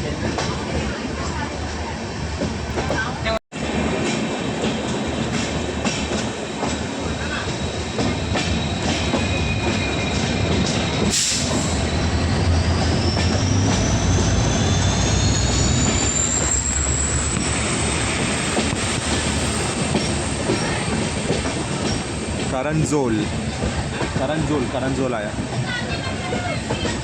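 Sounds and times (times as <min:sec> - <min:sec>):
train rumble: 0:00.0 - 0:27.0
train wheels squealing: 0:06.6 - 0:22.2.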